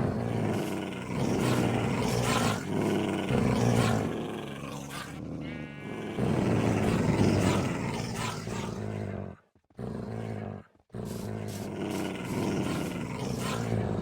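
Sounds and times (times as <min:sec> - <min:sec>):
low rough animal calls: 0:05.4 - 0:06.3.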